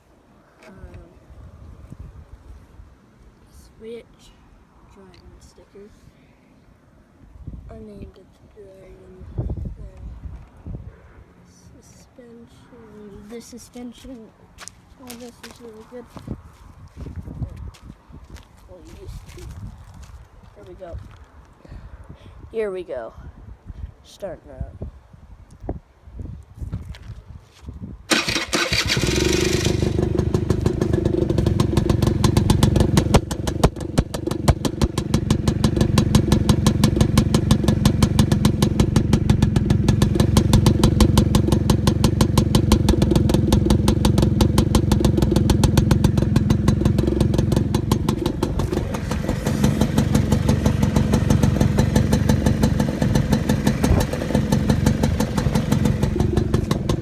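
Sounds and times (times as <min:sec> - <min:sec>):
quad bike engine starting and running: 0:28.1 - 0:57.0.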